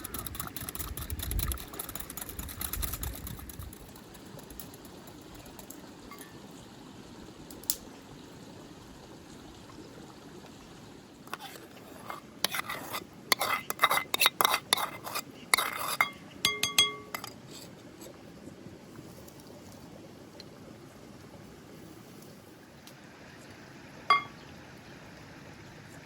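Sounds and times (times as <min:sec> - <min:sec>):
dishes and utensils clattering: 0:13.3 - 0:17.4
ringing clinks of metal: 0:16.5 - 0:17.3.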